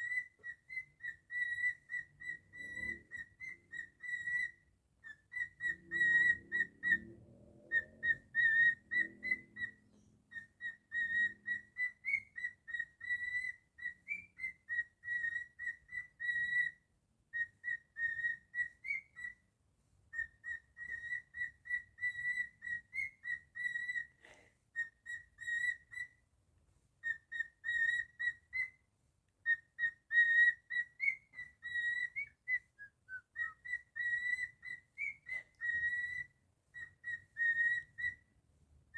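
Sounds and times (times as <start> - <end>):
cockatiel whistling: 0.0 - 19.4, 20.1 - 26.2, 27.0 - 38.3.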